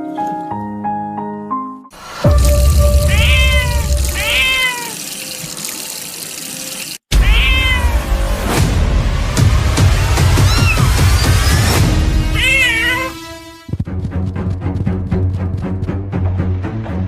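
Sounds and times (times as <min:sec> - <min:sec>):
rushing water: 0:02.0 - 0:07.8
cat meowing: 0:03.1 - 0:05.0, 0:07.2 - 0:08.1, 0:10.4 - 0:11.6, 0:12.4 - 0:13.2.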